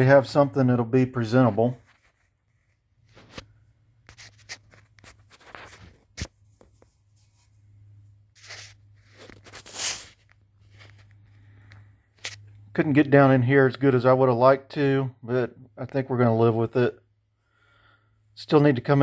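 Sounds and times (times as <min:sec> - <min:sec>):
low steady hum: 0:00.0 - 0:19.0
rubbing scrapes: 0:08.4 - 0:11.1.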